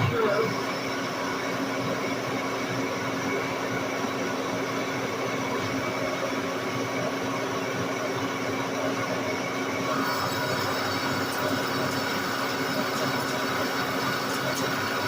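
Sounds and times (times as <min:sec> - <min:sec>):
lathe machine hum: 0:09.8 - 0:15.0.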